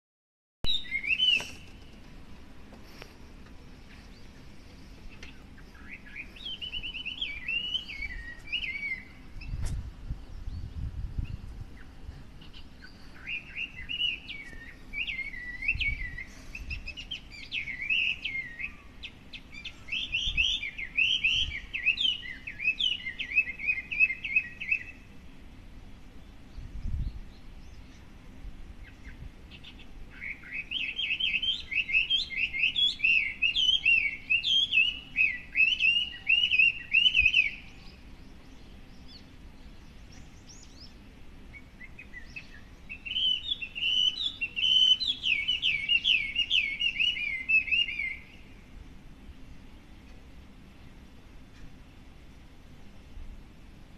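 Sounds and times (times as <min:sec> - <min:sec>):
songbird whistling rapid notes: 0:00.7 - 0:01.8, 0:05.8 - 0:09.6, 0:30.2 - 0:37.7, 0:41.9 - 0:48.3.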